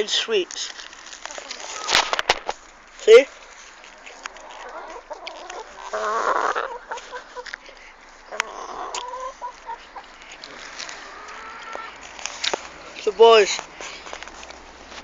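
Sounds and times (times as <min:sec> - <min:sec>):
chickens clucking: 0:01.2 - 0:02.6, 0:03.7 - 0:12.1
chicken squawk: 0:01.5 - 0:02.2, 0:04.4 - 0:07.5, 0:08.3 - 0:10.1, 0:11.0 - 0:12.0.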